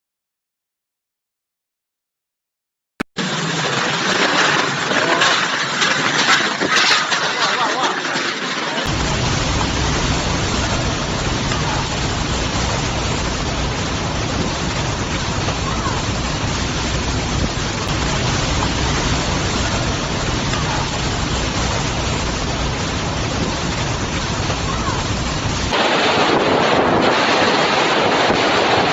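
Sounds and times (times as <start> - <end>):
strong wind blowing: 8.8 - 28.9.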